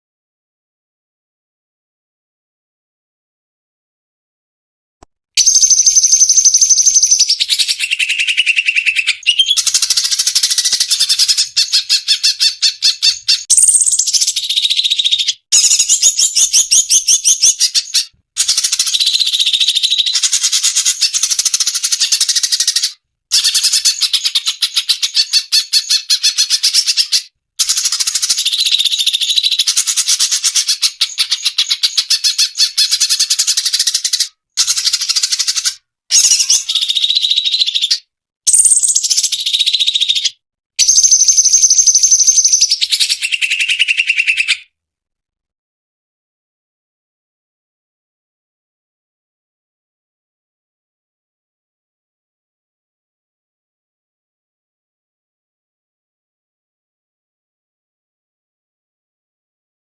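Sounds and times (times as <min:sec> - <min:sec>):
bird chattering and trilling: 0:05.4 - 0:44.7.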